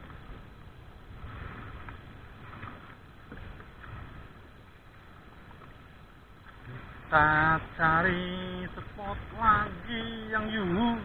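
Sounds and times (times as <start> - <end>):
oars splashing in water: 0.0 - 11.0
rushing water: 0.0 - 11.0
wind: 0.0 - 11.0.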